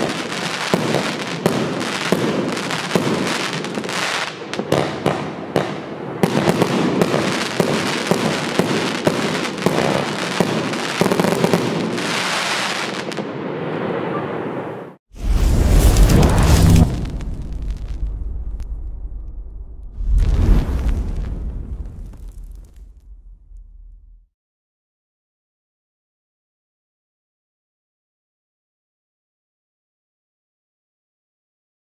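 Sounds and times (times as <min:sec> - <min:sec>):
crackling fireworks stars: 0:00.0 - 0:24.2
fireworks barrage: 0:00.0 - 0:24.2.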